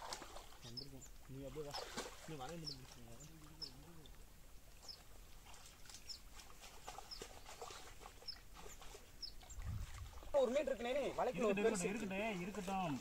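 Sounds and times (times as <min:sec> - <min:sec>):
bird chirping: 0:00.6 - 0:01.8, 0:02.5 - 0:04.1, 0:04.8 - 0:05.1, 0:05.9 - 0:09.7.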